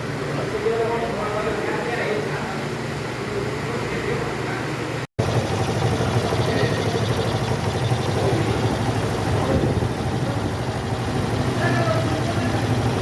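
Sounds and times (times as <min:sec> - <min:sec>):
motorcycle engine idling: 0:05.2 - 0:13.0.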